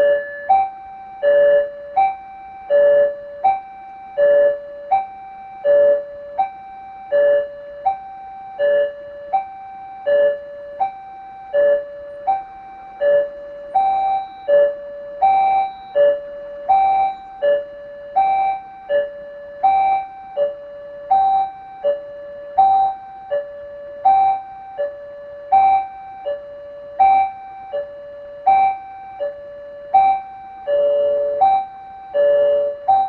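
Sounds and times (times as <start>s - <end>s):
level crossing two-tone warning chime: 8.7s - 33.0s.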